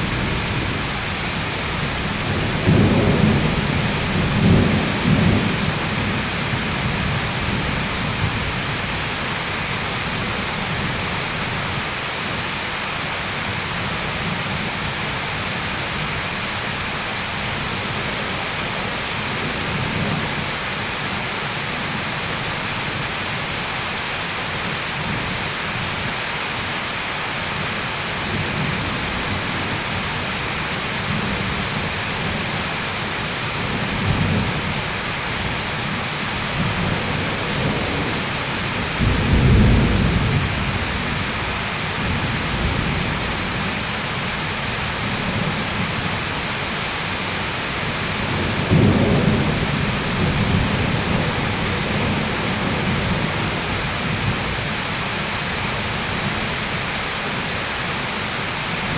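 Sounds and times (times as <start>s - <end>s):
thunder rumbling: 0.0s - 9.9s, 33.4s - 43.8s, 48.0s - 54.6s
heavy rain falling: 0.0s - 58.9s.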